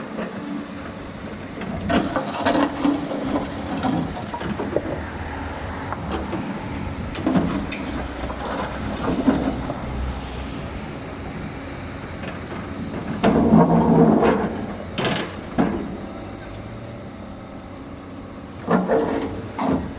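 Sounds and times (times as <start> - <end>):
excavator engine rumble: 0.0 - 19.9.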